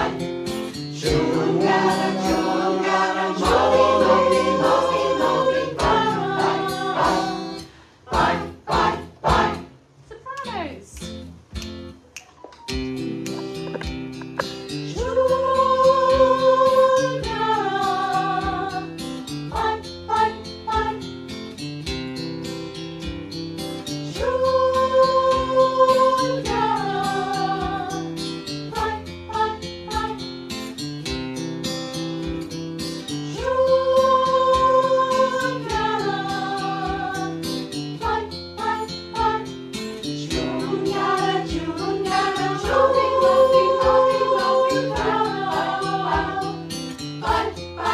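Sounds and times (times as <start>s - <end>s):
choir singing: 0.0s - 0.3s, 1.0s - 9.8s, 14.4s - 21.0s, 24.1s - 30.3s, 33.3s - 39.6s, 40.2s - 47.9s
instrumental accompaniment: 11.0s - 17.5s.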